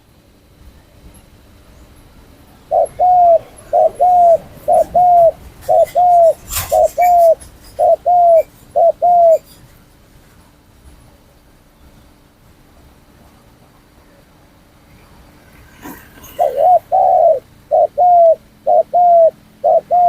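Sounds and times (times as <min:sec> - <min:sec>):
dove cooing: 0:02.6 - 0:09.7, 0:15.4 - 0:20.0.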